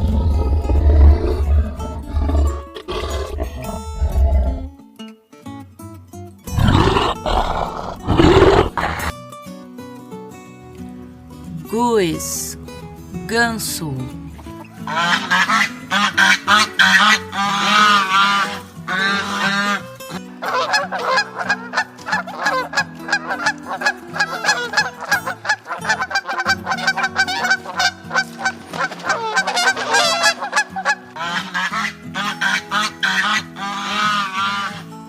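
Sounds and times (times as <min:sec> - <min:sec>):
background music: 0:00.0 - 0:35.0
geese honking: 0:14.8 - 0:34.9.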